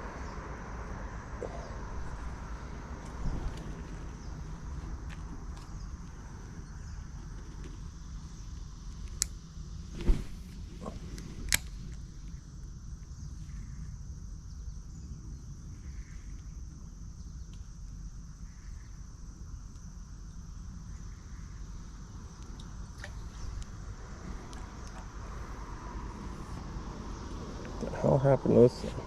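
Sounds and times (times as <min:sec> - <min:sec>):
low rumble: 0:00.0 - 0:08.8
insects droning: 0:00.0 - 0:29.0
faint ticks: 0:17.4 - 0:18.9.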